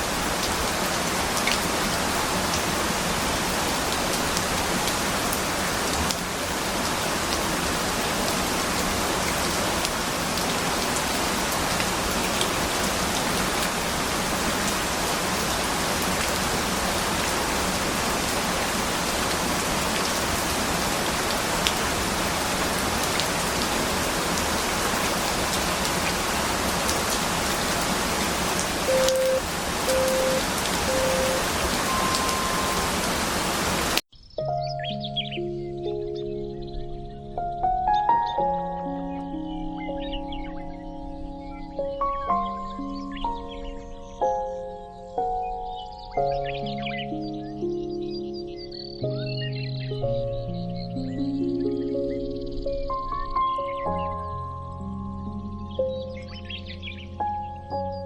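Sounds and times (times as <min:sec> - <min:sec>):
steady rain: 0:00.0 - 0:34.0
timer beeps: 0:28.9 - 0:32.8.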